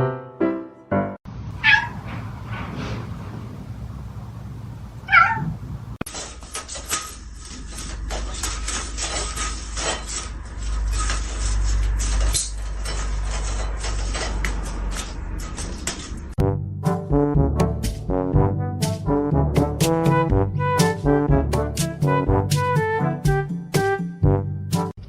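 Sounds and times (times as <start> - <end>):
cat meowing: 1.6 - 2.0, 5.0 - 5.6
clicks and rustles: 6.0 - 16.4.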